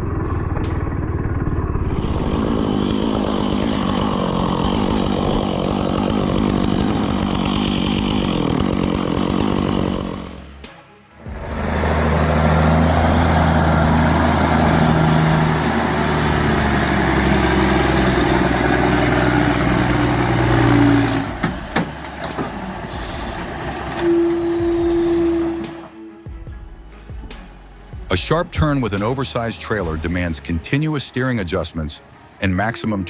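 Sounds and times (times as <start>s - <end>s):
steady tone: 0.0s - 25.9s
heavy truck engine running: 0.0s - 30.6s.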